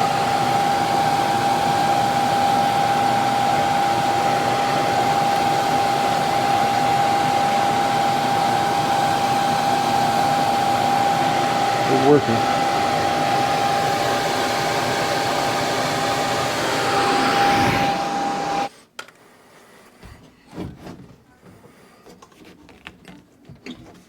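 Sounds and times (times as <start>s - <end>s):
furnace blower rushing air: 0.0s - 18.7s
high whine: 0.0s - 18.7s.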